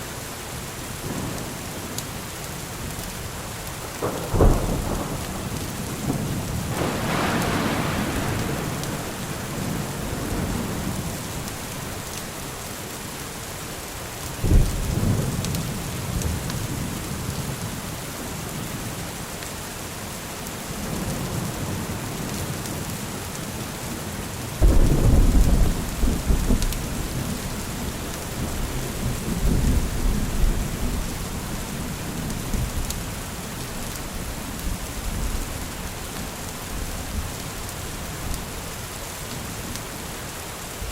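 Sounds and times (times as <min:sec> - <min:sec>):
steady rain: 0:00.0 - 0:40.9
thunder rumbling: 0:03.8 - 0:12.9, 0:24.6 - 0:33.2.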